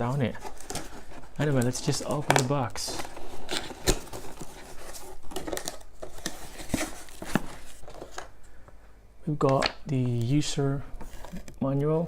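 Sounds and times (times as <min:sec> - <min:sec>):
cardboard box rustling: 0:00.0 - 0:08.3, 0:11.0 - 0:11.6.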